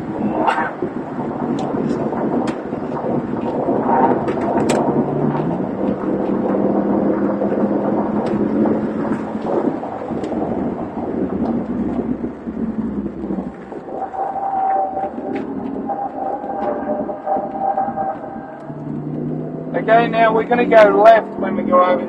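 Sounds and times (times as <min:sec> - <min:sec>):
car engine: 0:00.0 - 0:22.0
tyre and wind rumble: 0:00.0 - 0:22.0.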